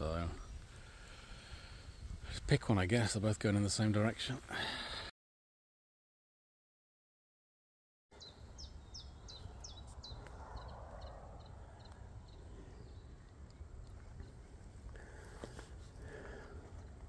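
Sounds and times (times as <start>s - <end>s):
songbird chirping: 8.1s - 17.0s.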